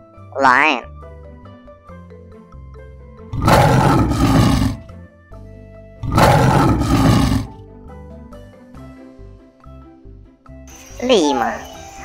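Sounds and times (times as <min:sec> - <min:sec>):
light background music: 0:00.0 - 0:12.0
lion roaring: 0:03.3 - 0:05.0, 0:06.0 - 0:07.6.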